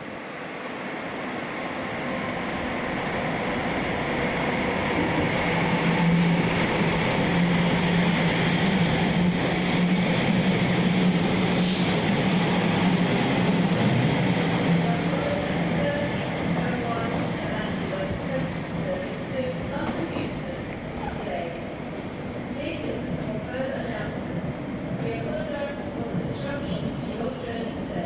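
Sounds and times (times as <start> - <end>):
train running: 0.0 - 28.0.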